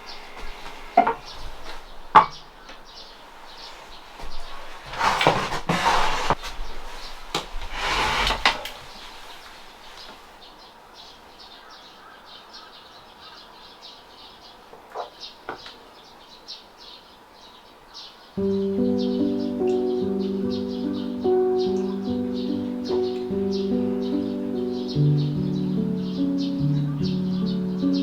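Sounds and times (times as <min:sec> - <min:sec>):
rustling or sliding noise: 0:03.3 - 0:10.5.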